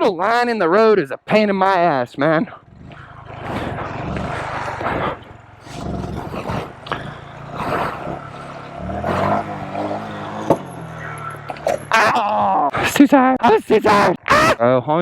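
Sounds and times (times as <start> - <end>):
mini bike engine revving: 2.5 - 12.7.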